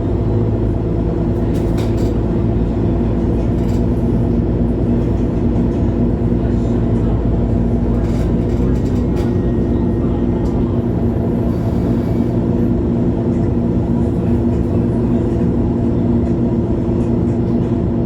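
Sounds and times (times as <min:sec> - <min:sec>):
bus diesel engine humming: 0:00.0 - 0:18.0.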